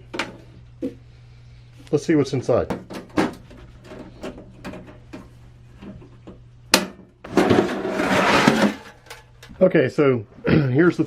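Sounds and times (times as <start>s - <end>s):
cover scraping off: 7.3s - 9.2s.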